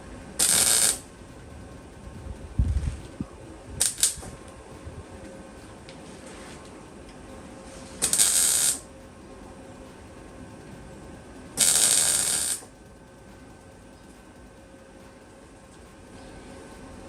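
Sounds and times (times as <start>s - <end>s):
mig welder weld bursts: 0.3s - 1.2s, 3.0s - 4.6s, 7.7s - 8.9s, 11.6s - 12.7s.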